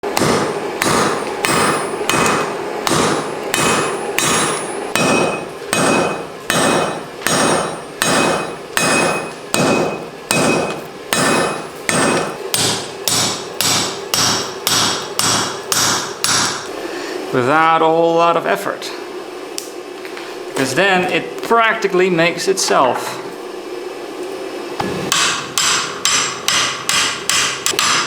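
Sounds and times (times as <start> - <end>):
hammer striking anvil: 0.1 - 16.7, 24.8 - 28.0.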